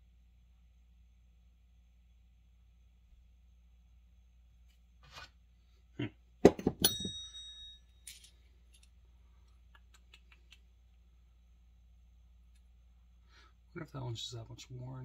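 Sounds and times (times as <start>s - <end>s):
metal piece ringing like a bell: 6.8s - 8.1s
light ticks of handled metal: 6.8s - 10.6s
metal parts clinking together: 7.9s - 9.0s.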